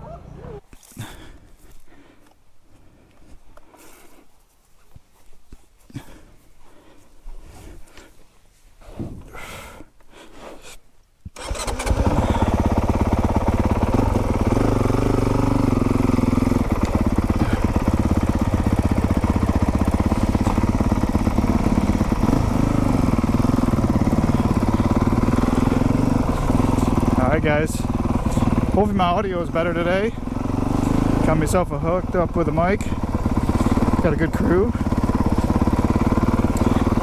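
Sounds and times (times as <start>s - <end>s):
dirt bike engine idling: 11.4s - 37.0s.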